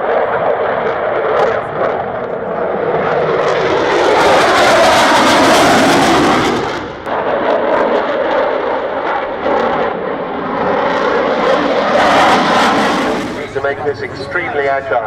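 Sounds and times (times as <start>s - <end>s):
jet engines crackling rumble: 0.0s - 15.0s.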